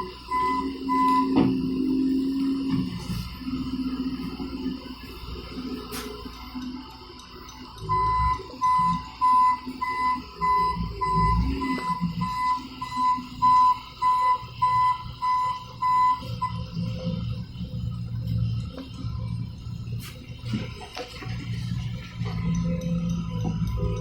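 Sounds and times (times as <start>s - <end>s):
machine warning beeper: 0.0s - 6.1s, 7.8s - 17.3s
low machine rumble: 0.0s - 24.0s.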